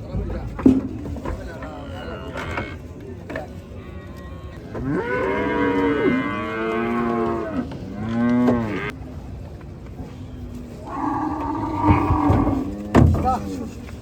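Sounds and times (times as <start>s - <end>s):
cow mooing: 1.8s - 2.8s, 4.8s - 9.0s, 10.9s - 13.0s.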